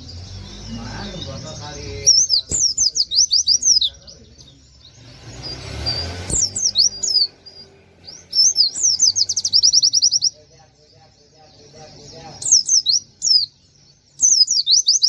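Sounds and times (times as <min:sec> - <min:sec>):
bird singing high notes: 0:00.0 - 0:10.4.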